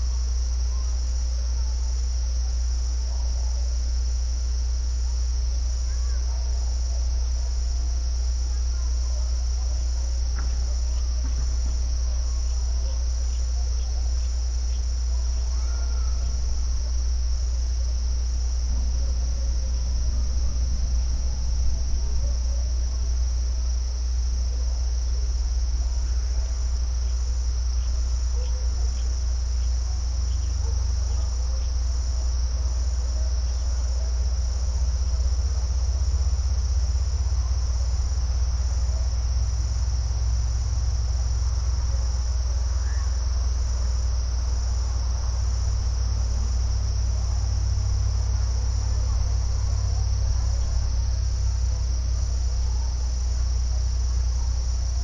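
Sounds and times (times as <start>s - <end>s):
crickets chirring: 0.0s - 55.0s
low rumble: 16.1s - 26.0s.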